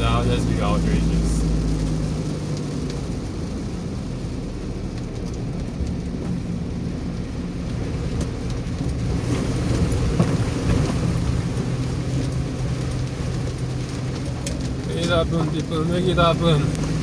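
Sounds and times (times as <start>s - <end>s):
rain hissing: 0.0s - 4.9s, 9.0s - 17.0s
moving vehicle rumble: 0.0s - 17.0s.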